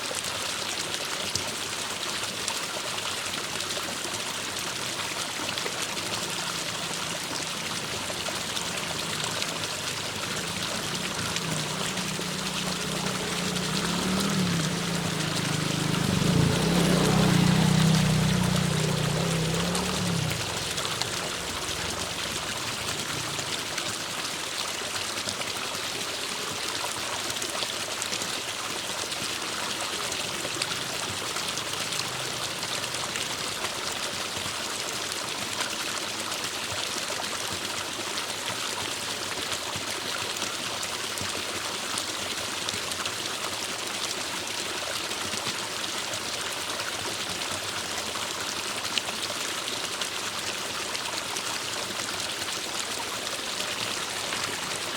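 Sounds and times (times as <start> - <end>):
stream rushing and trickling: 0.0 - 54.9.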